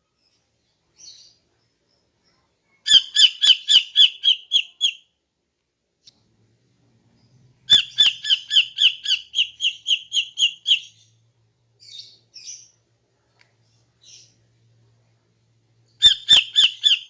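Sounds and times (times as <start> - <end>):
bird chirping rapidly: 2.9 - 5.0, 7.7 - 11.1, 16.0 - 17.0.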